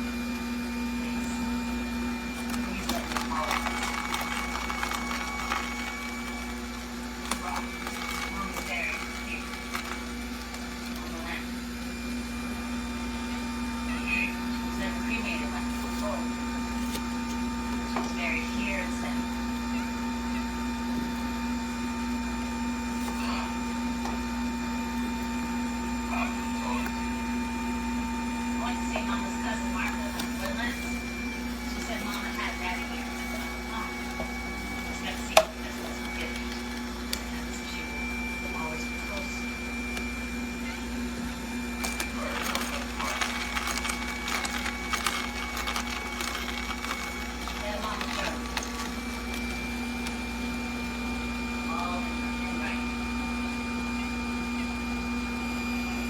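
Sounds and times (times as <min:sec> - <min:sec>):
electric juicer motor humming: 0:00.0 - 0:56.0
produce crackling and crunching: 0:01.0 - 0:12.9, 0:15.2 - 0:17.6, 0:29.0 - 0:52.2.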